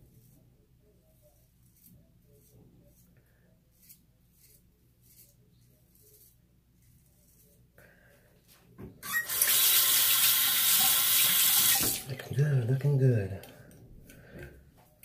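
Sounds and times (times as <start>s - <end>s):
razor scraping stubble: 1.2s - 7.7s.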